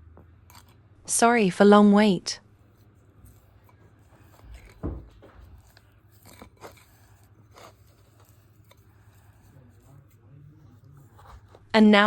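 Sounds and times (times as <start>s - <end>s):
slime squishing: 2.6s - 11.7s.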